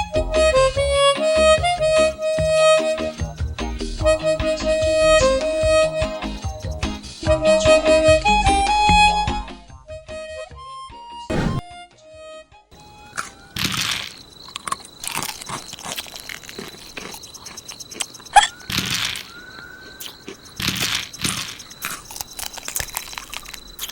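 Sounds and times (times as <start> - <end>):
crunching chewing: 12.8 - 23.9
short squeaky chirps: 12.8 - 23.9
faint high whistle: 18.2 - 22.5.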